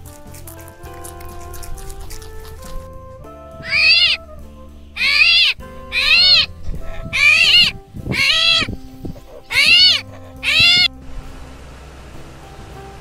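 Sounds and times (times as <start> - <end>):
animal meow-like call: 3.6 - 4.2, 5.0 - 8.7, 9.4 - 10.9.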